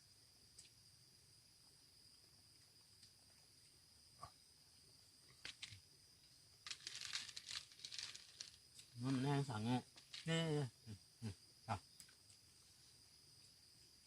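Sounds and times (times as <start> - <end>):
high-pitched insect drone: 5.6 - 14.0.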